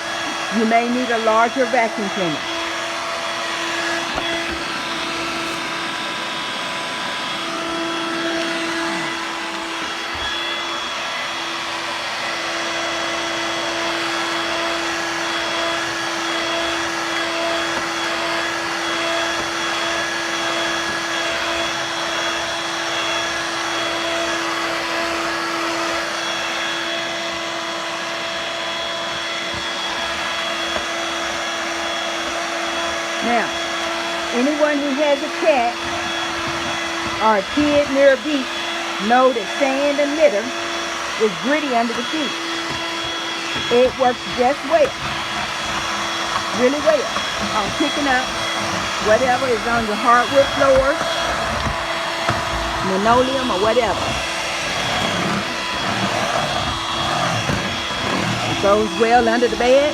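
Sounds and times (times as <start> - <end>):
vacuum cleaner motor whine: 0.0 - 59.9.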